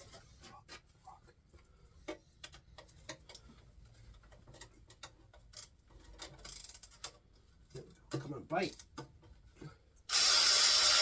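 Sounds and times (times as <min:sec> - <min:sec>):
hand ratchet clicking: 0:10.1 - 0:11.0.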